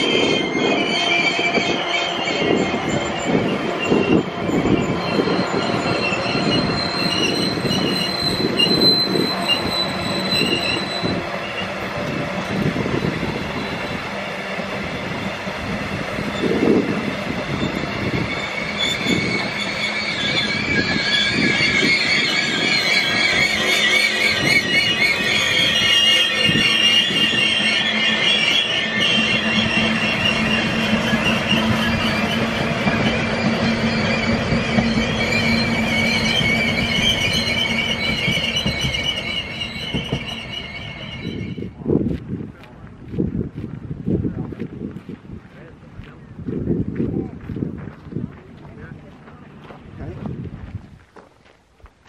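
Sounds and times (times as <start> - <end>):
high wavering wheel squeal: 0.0 - 41.8
train coaches rumbling: 0.0 - 51.2.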